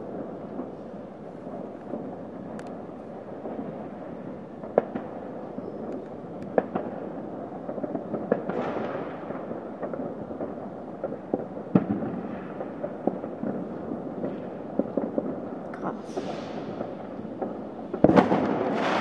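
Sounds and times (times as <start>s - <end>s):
hissing crackle: 0.0s - 19.0s
distant firework bangs: 3.3s - 19.0s
loud firecracker bangs: 6.5s - 19.0s.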